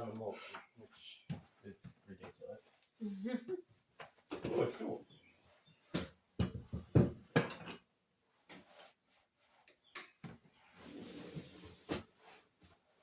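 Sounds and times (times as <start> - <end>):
objects knocking and clinking: 6.4 - 7.9.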